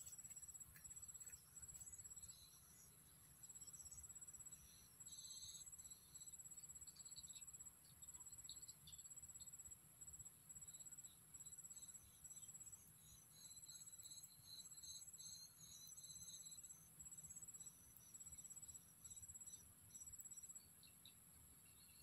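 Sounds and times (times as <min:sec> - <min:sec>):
high insect drone: 0:00.0 - 0:20.7
crickets chirping: 0:00.0 - 0:22.0.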